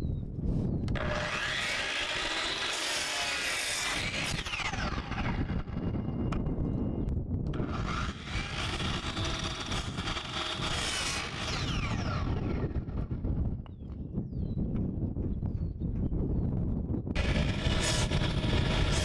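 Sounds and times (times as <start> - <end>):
electric saw cutting boards: 0.9 - 6.0, 7.6 - 13.2, 17.2 - 19.0.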